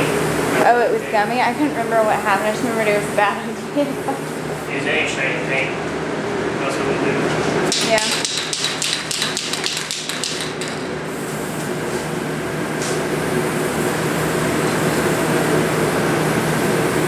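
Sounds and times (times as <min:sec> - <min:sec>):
steady hum and hiss: 0:00.0 - 0:17.0
rapid sharp knocks: 0:07.7 - 0:11.0.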